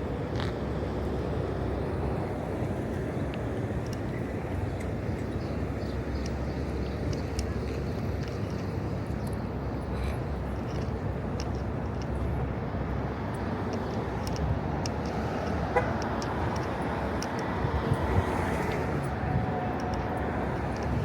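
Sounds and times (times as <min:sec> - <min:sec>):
passing cars rumbling: 0:09.6 - 0:21.0.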